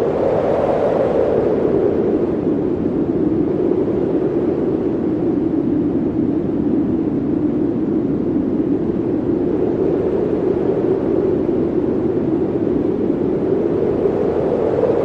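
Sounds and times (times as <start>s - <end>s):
snowstorm wind roaring: 0.0s - 15.0s.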